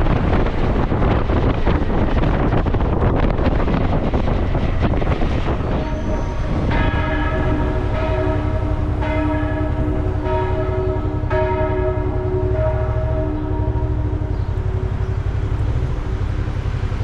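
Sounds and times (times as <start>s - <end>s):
motorcycle engine rumble: 0.0s - 17.0s
wind noise: 0.0s - 17.0s
church bell ringing: 5.4s - 16.7s.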